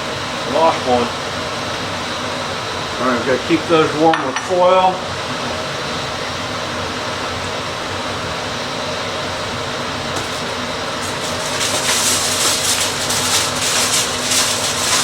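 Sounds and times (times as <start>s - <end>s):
steady fan-like hiss: 0.0s - 15.0s
aluminium foil crinkling: 10.2s - 15.0s.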